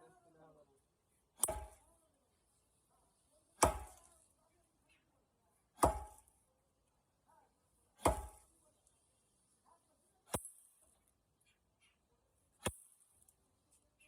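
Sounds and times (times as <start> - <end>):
heavy chopping blows into wood: 5.8 - 6.2.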